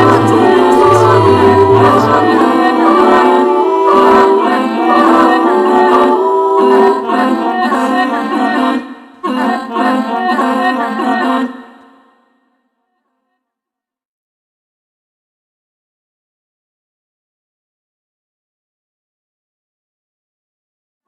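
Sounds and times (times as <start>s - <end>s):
choir singing held chords: 0.0s - 12.4s.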